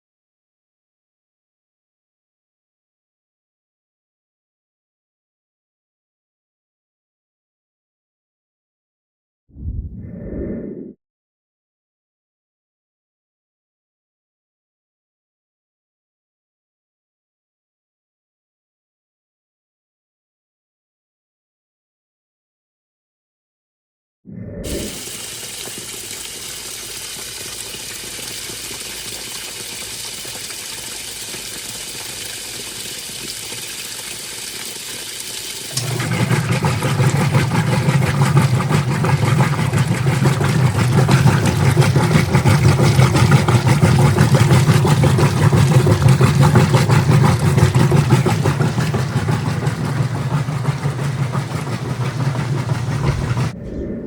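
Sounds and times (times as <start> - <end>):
water filling washing machine: 24.6 - 53.6
washing machine churning: 24.7 - 53.6
washing machine motor humming: 24.7 - 53.7.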